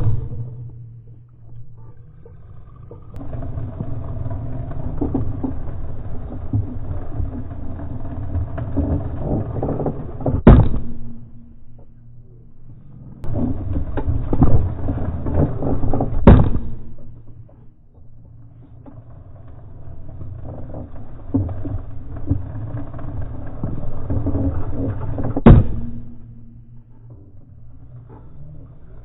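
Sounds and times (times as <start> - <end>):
bicycle chain loud bangs: 10.4 - 11.7, 16.2 - 17.0, 25.4 - 26.4.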